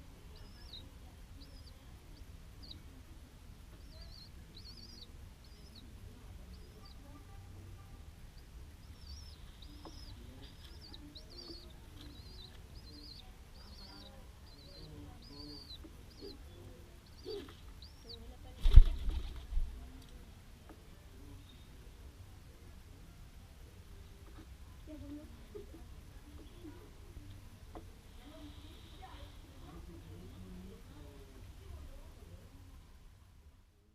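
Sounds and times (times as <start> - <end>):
dove wings flapping: 18.6 - 19.6.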